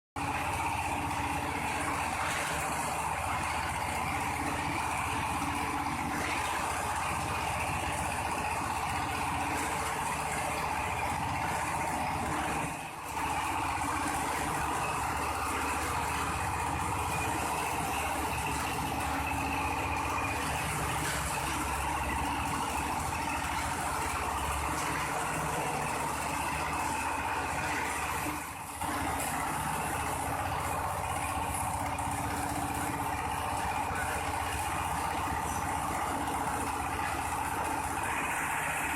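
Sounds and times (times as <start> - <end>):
machine mechanical hum: 0.2 - 38.9.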